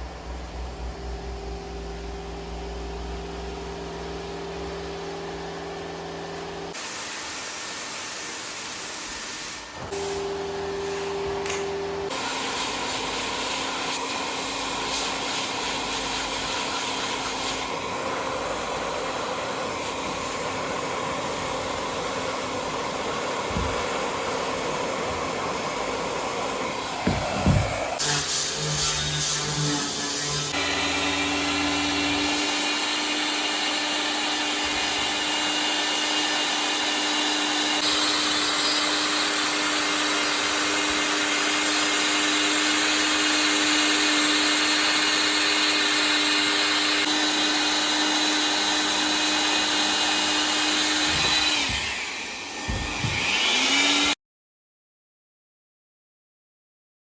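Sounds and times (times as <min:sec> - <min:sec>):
workshop equipment hissing: 0:00.0 - 0:54.0.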